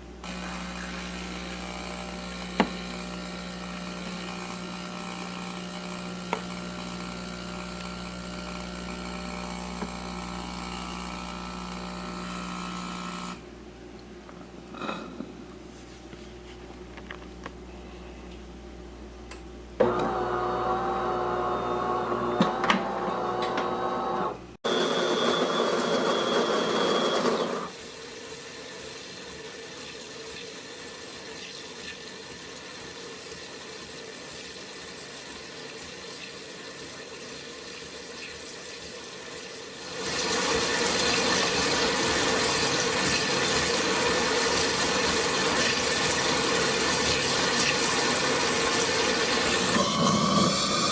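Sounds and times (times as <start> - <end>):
espresso machine whirring: 0.2 - 13.5, 19.8 - 27.7, 40.0 - 50.9.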